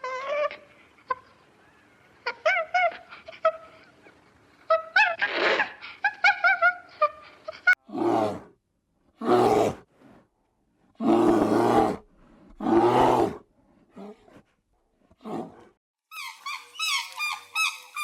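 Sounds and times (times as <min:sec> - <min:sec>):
animal yipping: 0:16.1 - 0:18.0.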